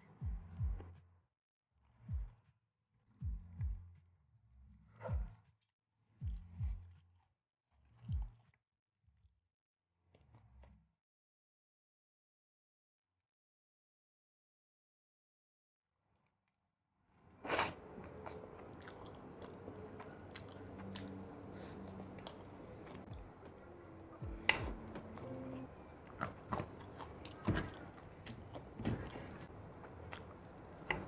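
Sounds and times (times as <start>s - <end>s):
person chewing food: 17.5s - 31.0s
wet mouth clicks: 20.4s - 23.1s, 25.2s - 31.0s.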